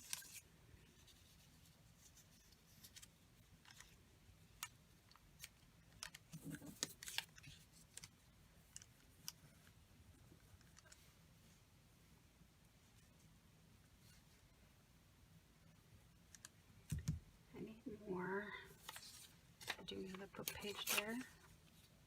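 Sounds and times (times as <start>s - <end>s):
scissors cutting paper: 20.4s - 21.3s.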